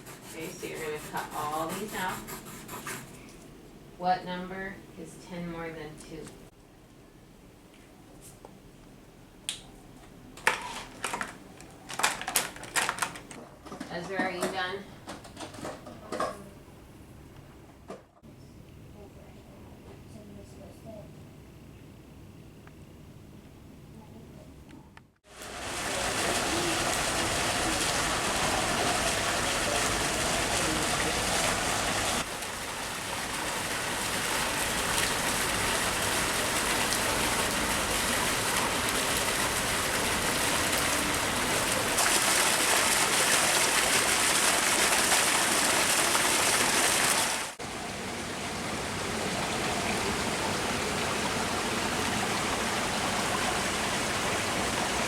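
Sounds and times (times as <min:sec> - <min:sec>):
rushing water roaring: 0:25.3 - 0:55.0.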